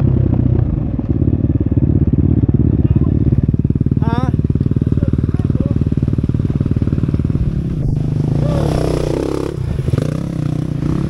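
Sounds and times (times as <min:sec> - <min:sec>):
dirt bike engine idling and revving: 0:00.0 - 0:11.0.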